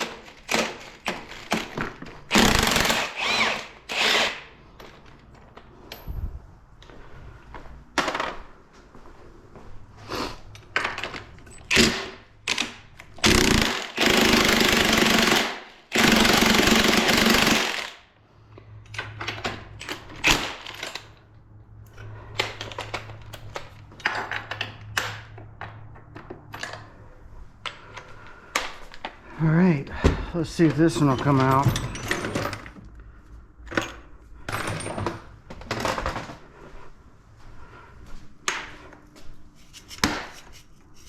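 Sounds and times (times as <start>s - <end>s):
impact tool bursts: 0.1s - 4.5s, 11.7s - 18.0s
hand tools clinking on metal: 30.6s - 32.7s.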